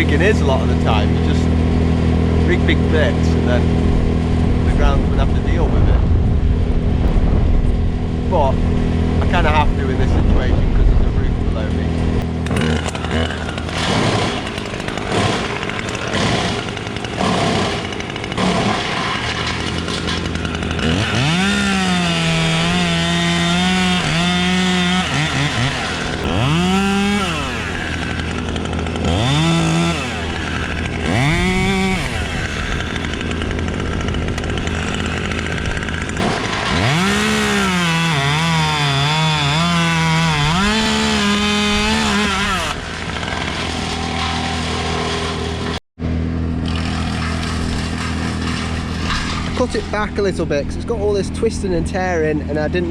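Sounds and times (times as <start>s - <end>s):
chainsaw idling: 0.0s - 5.5s, 12.0s - 52.9s
chainsaw revving and cutting wood: 0.0s - 6.0s, 8.3s - 10.4s, 11.3s - 52.9s.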